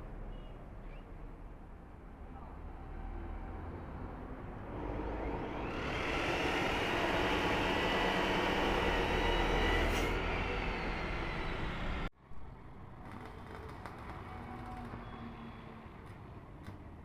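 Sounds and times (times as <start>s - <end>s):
power tool running on steel: 4.7s - 12.1s.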